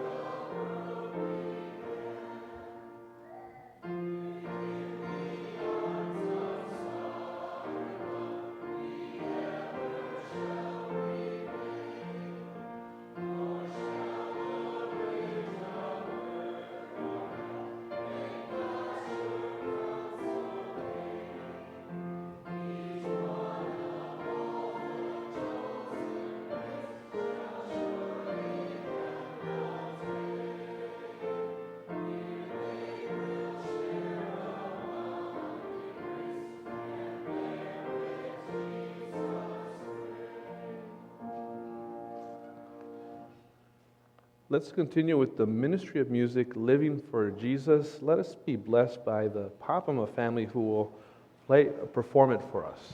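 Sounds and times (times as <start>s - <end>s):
congregation singing a hymn: 0.0s - 43.6s, 44.5s - 52.9s.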